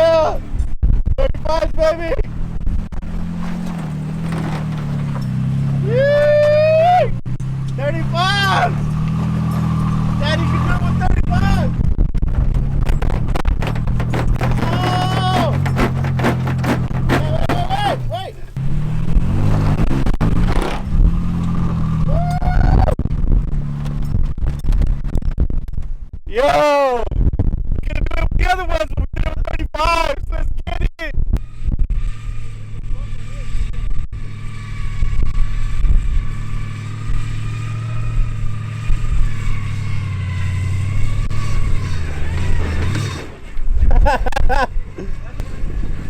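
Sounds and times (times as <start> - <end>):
truck engine revving: 1.3 - 24.8, 31.3 - 46.0
person shouting: 5.8 - 7.1, 22.1 - 23.0, 26.3 - 27.0.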